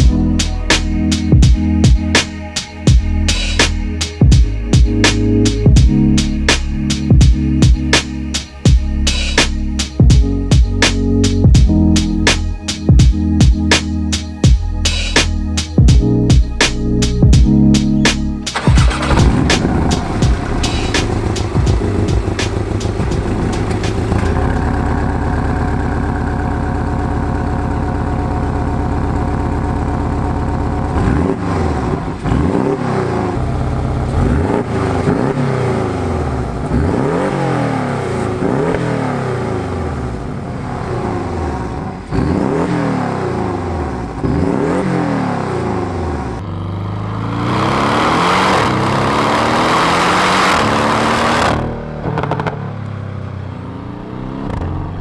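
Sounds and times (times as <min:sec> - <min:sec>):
sports car engine revving: 0:17.5 - 0:52.8.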